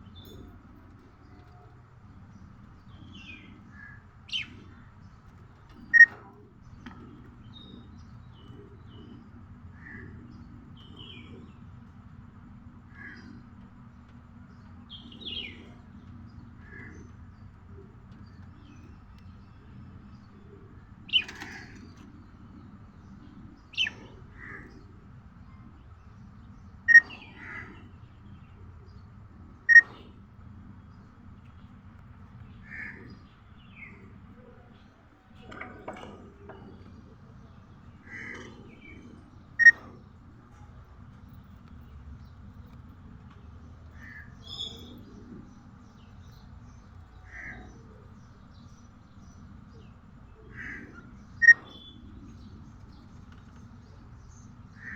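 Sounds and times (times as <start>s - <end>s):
budgerigar chirping: 39.6s - 39.9s.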